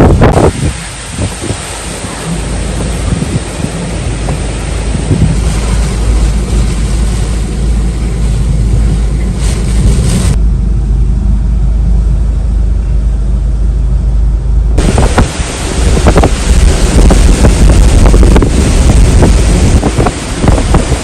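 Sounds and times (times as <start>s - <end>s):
rushing hiss: 0.0s - 10.4s, 14.8s - 21.0s
wind buffeting microphone: 0.0s - 10.5s, 14.7s - 21.0s.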